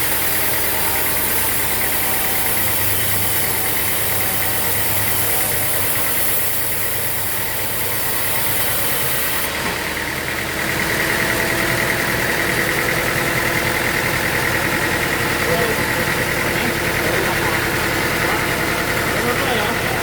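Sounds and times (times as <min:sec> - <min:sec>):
pulsing high whine: 0:00.0 - 0:09.6
engine running steadily: 0:00.0 - 0:20.0.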